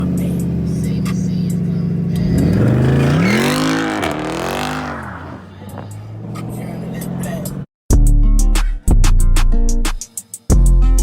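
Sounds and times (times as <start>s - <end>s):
car engine idling and revving: 0.0s - 7.7s.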